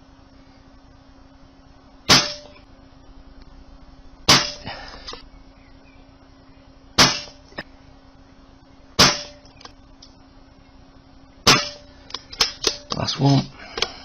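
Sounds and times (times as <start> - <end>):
air rifle shots cracking: 2.1 - 2.6, 4.2 - 4.7, 7.0 - 7.5, 9.0 - 9.8, 11.4 - 13.0.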